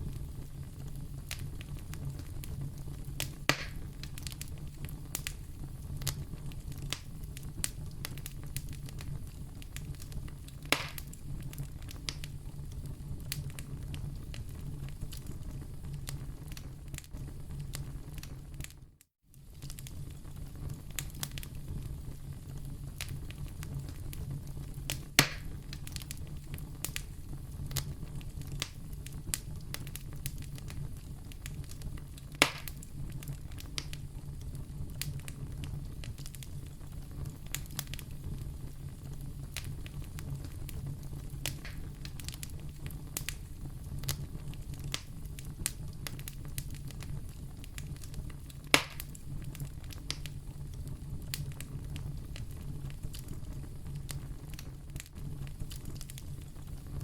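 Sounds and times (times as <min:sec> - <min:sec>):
wood fire rumbling and crackling: 0:00.0 - 0:57.0
sharp loud fire pops: 0:03.5 - 0:03.9, 0:10.7 - 0:11.1, 0:25.2 - 0:25.6, 0:32.4 - 0:32.8, 0:48.7 - 0:49.1.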